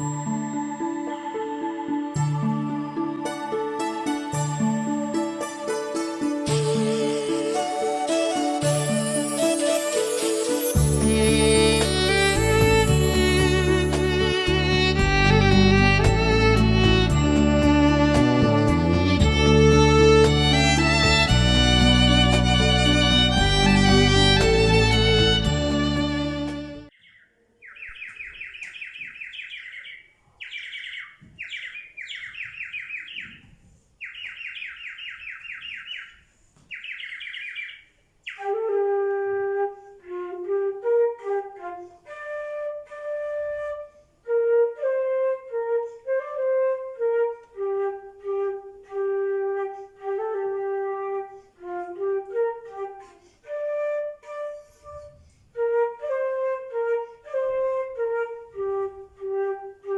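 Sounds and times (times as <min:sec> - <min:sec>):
solo flute melody: 0:00.0 - 0:26.9, 0:38.3 - 0:59.9
songbird trilling: 0:26.9 - 0:38.4.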